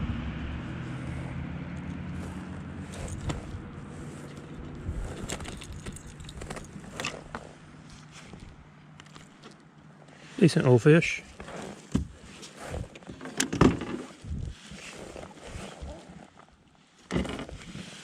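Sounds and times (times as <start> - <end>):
distant motorboat engine: 0.0 - 8.8.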